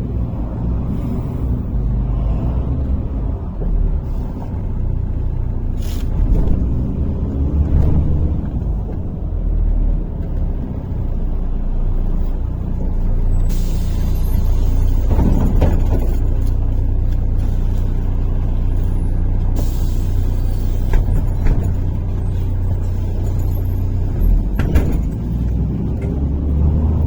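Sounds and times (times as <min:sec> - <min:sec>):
bus engine drone: 0:00.0 - 0:27.0
knocks and rattles: 0:14.4 - 0:18.5, 0:20.9 - 0:26.7.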